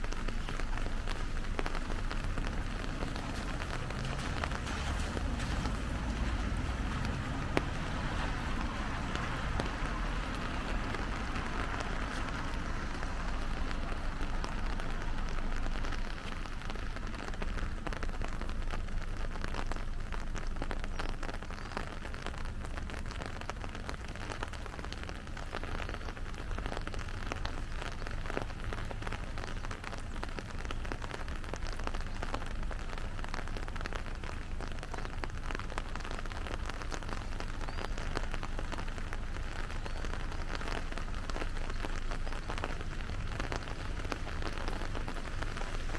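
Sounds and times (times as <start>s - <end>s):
rain on street: 0.0s - 45.9s
raindrops ticking: 0.0s - 45.9s.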